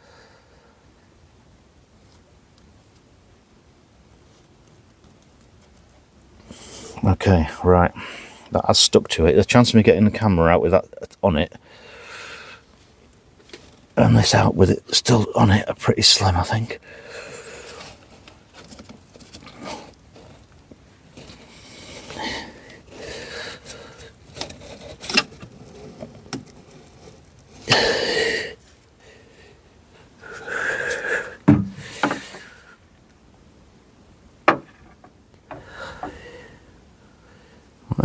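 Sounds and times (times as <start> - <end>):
tools scraping and rubbing: 23.6 - 27.9.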